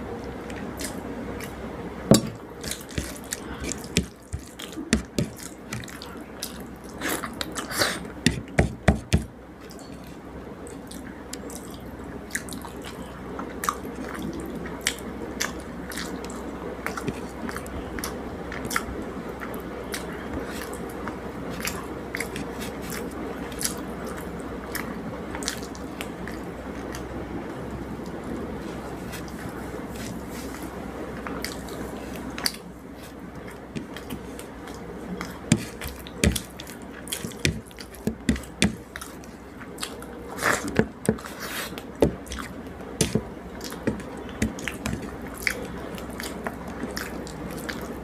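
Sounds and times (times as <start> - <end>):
steady background hiss: 0.0 - 48.0
wet eating and chewing: 0.2 - 1.6, 2.4 - 48.0.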